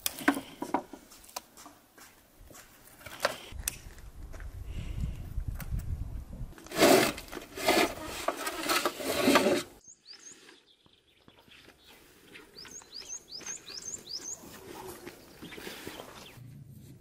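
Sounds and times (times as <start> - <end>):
loud scraping crunching: 6.6 - 9.8
small bird chirping: 9.8 - 16.4.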